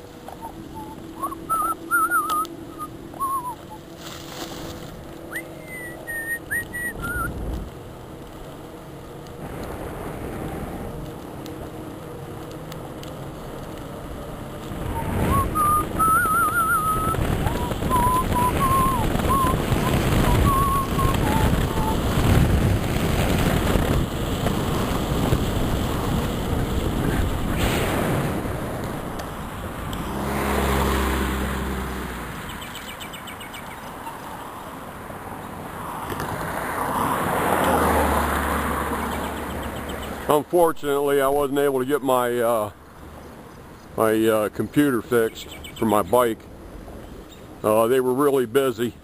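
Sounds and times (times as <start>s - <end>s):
wavering whistle: 0.4s - 3.8s, 5.3s - 7.4s, 14.8s - 22.0s
wind rushing over microphone: 5.6s - 12.0s, 14.2s - 32.8s.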